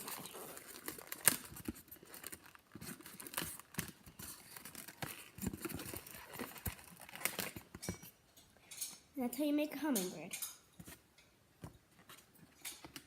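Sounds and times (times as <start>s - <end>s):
balloon rubbing and squeaking: 0.0s - 1.3s.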